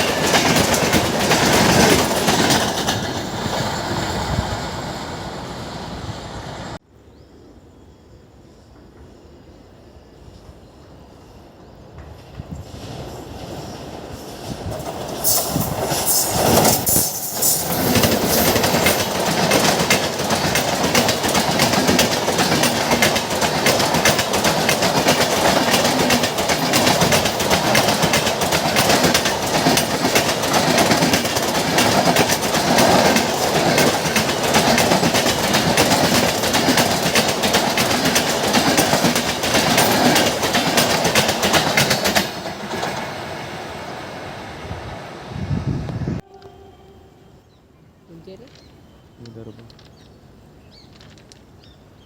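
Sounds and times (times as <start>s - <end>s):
train wheels clicking over rail joints: 0.0s - 5.4s, 11.9s - 44.2s.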